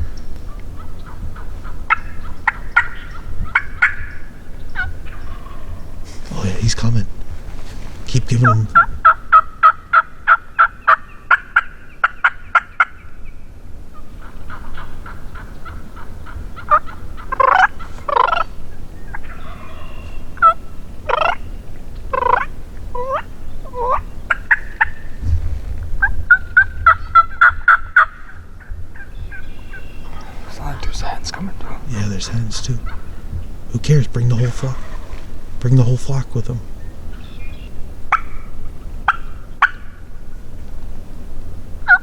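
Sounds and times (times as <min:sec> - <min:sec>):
turkey gobbling: 0:00.0 - 0:06.9, 0:08.2 - 0:13.0, 0:13.9 - 0:25.2, 0:26.0 - 0:40.1
turkey yelps: 0:00.1 - 0:06.4, 0:08.4 - 0:13.0, 0:13.9 - 0:21.5, 0:22.1 - 0:25.1, 0:31.6 - 0:33.2, 0:37.1 - 0:40.0.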